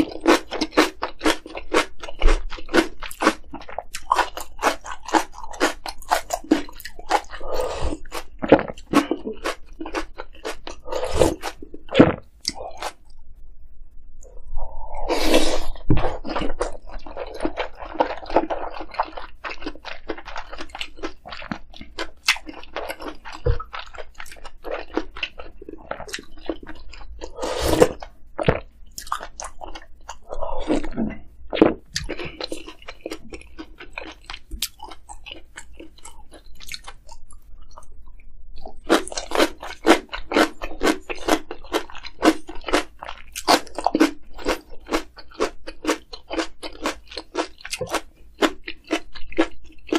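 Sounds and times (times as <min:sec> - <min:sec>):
wet clicky chewing: 0:15.8 - 0:49.9.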